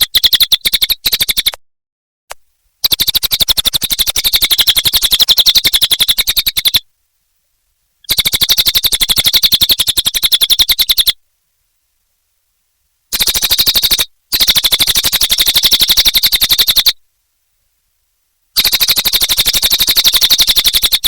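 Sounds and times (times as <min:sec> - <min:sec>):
bird singing rapid trills: 0:00.0 - 0:01.5, 0:02.8 - 0:06.8, 0:08.0 - 0:11.2, 0:13.1 - 0:17.0, 0:18.6 - 0:21.0.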